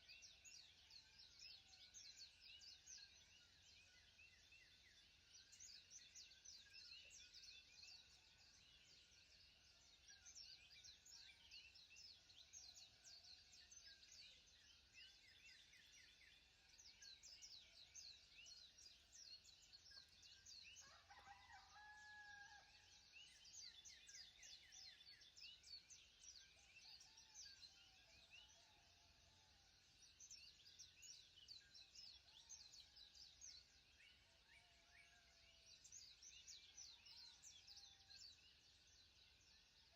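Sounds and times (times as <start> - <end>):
faint birds chirping: 0.0 - 22.6.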